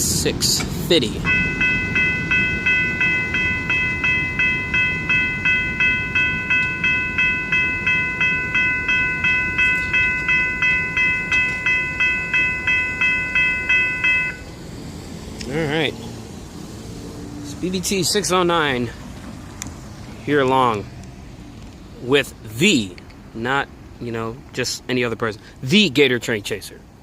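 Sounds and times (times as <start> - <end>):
crossing warning bell ringing: 1.0 - 14.7.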